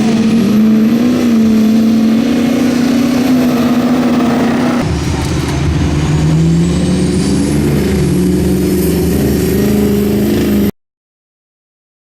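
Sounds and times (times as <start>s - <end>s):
diesel truck engines racing: 0.0s - 10.7s
high whine: 0.0s - 10.7s.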